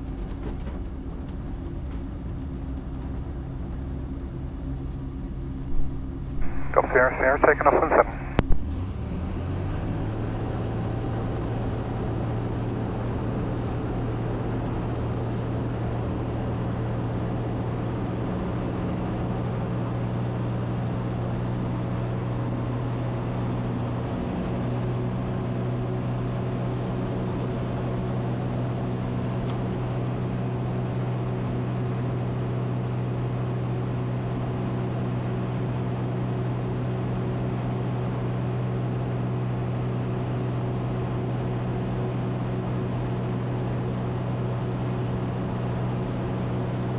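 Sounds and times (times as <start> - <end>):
aircraft engine and propeller drone: 1.7 - 46.9.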